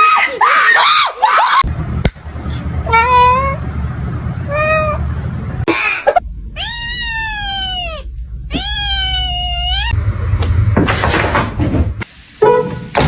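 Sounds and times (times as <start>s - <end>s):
cat meowing: 6.5s - 10.0s.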